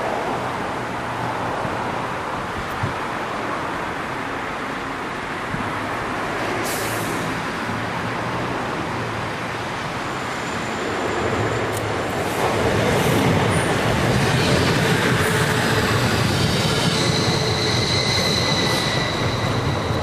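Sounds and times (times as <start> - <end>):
train rushing noise: 0.0 - 20.0.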